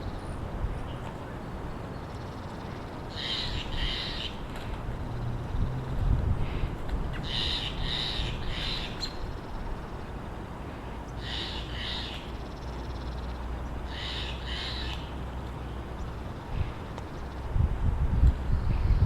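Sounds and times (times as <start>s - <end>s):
robin calling harsh notes: 3.1s - 4.4s, 7.2s - 9.3s, 11.2s - 12.3s, 13.9s - 15.1s
steady low rumble: 3.7s - 19.0s.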